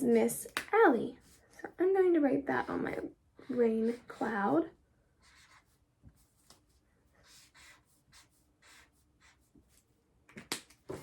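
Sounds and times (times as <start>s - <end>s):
marker writing on paper: 5.2s - 9.9s.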